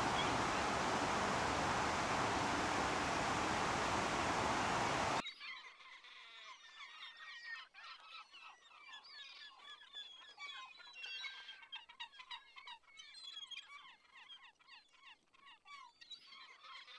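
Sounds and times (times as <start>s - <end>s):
flock of birds chirping: 0.0s - 5.2s.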